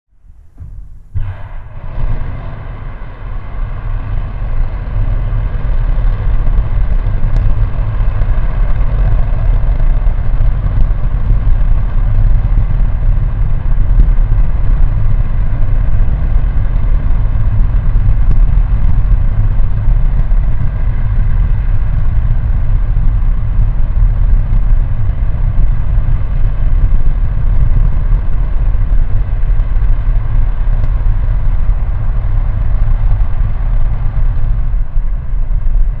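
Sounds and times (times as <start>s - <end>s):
rocket engine roaring: 0.3s - 36.0s.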